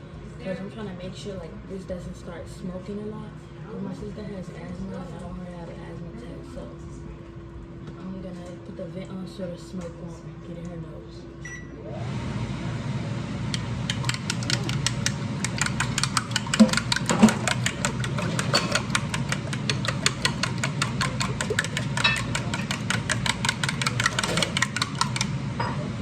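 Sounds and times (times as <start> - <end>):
vent fan humming: 0.0 - 26.0
fast even clicking: 13.9 - 25.3.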